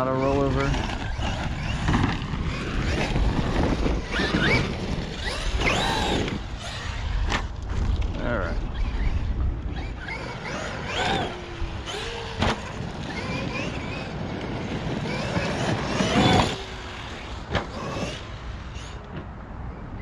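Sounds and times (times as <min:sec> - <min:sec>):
electric motor whining: 0:00.0 - 0:07.4, 0:08.7 - 0:19.0.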